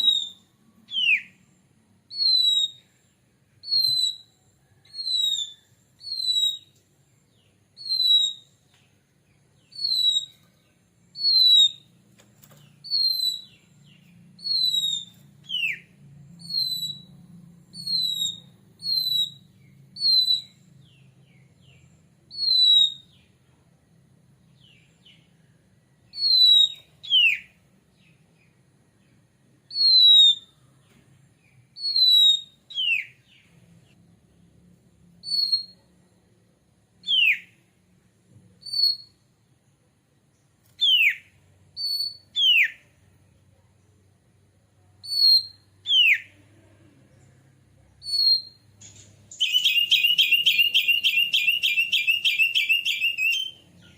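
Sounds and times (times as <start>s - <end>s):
bird whistling falling notes: 49.3s - 53.6s.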